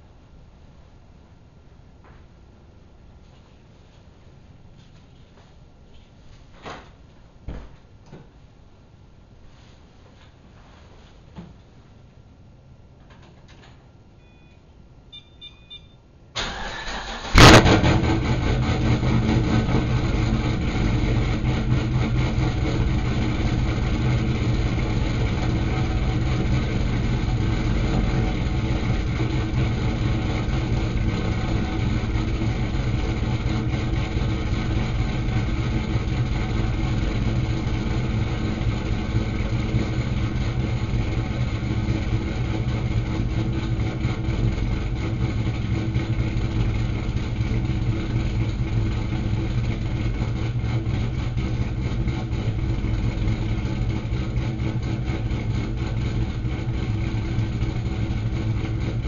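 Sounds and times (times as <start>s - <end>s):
car engine idling: 16.4s - 59.0s.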